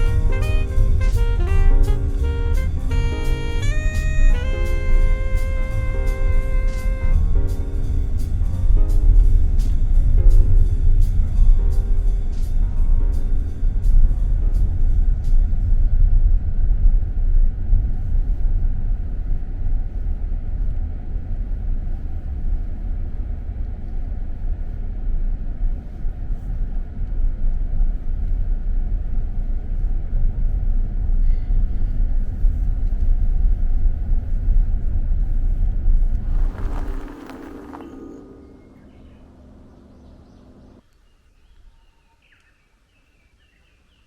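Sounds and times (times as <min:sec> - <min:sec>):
vehicle road and engine rumble: 0:35.5 - 0:40.8.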